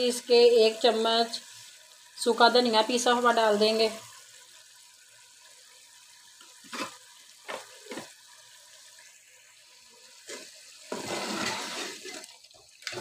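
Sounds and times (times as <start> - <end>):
meat frying sizzle: 0.0 - 13.0
ladle scraping pot: 10.3 - 12.3.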